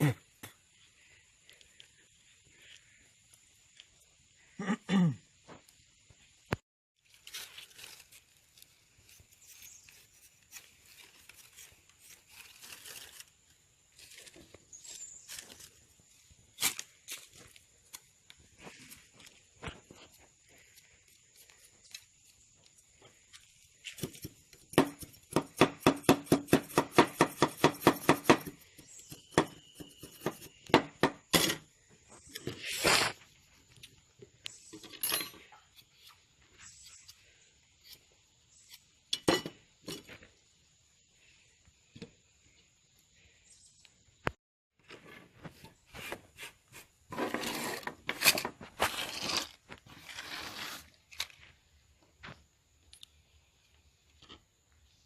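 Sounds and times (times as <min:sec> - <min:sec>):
hand scraping and rubbing: 0:32.3 - 0:33.4, 0:44.8 - 0:51.5.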